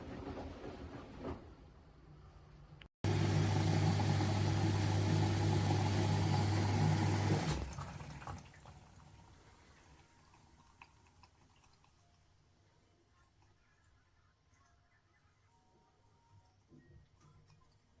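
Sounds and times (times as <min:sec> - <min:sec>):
water rushing: 0:03.0 - 0:08.4
washing machine low hum: 0:03.0 - 0:11.1.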